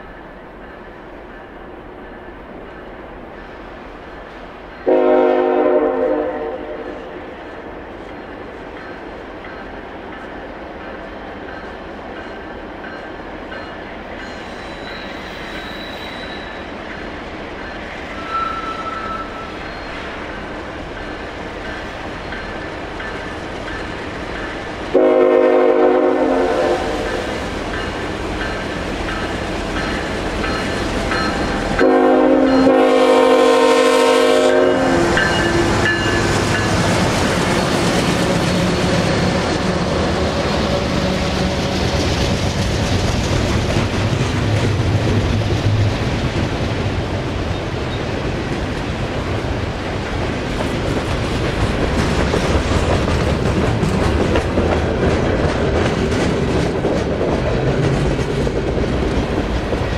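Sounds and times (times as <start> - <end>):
locomotive air horn blasts: 4.8 - 7.1, 24.9 - 27.1, 31.8 - 35.6
wheels clacking on rail: 8.0 - 59.9.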